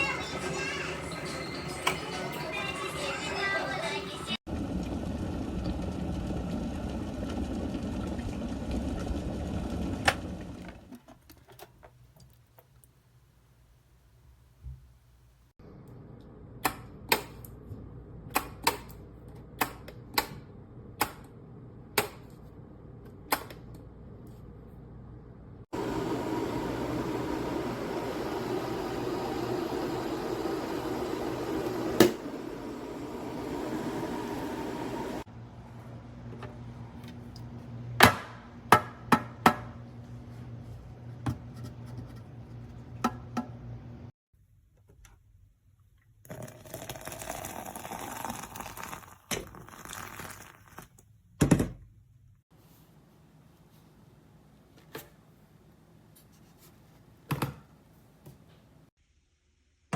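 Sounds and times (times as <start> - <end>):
kettle boiling rumble: 4.5 - 11.0, 25.7 - 37.6, 46.3 - 50.8
kettle shut-off click: 25.8 - 35.2.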